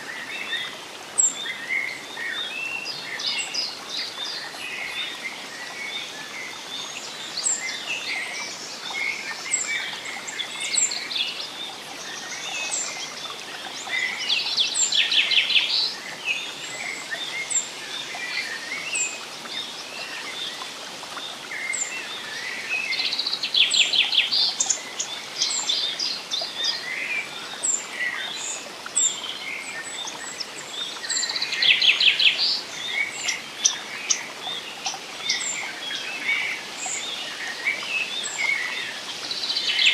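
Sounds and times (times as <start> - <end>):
forest birds singing: 0.0 - 39.9.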